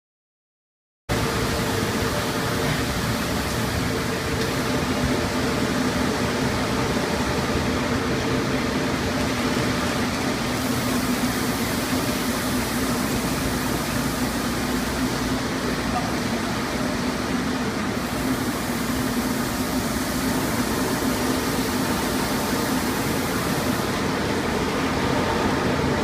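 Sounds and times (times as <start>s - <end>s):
car wash machinery rushing: 1.1s - 26.0s.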